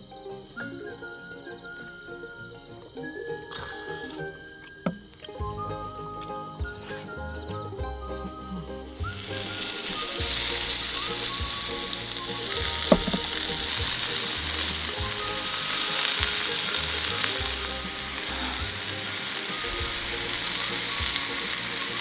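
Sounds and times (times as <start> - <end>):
food sizzling in a pot: 1.4 - 22.0
sharp knock: 12.9 - 13.3.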